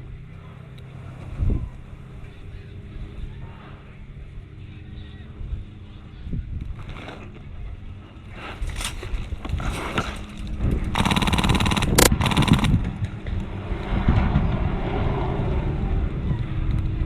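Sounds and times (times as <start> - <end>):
outdoor rustle: 8.3 - 10.6
airsoft gun full-auto burst: 11.0 - 12.8.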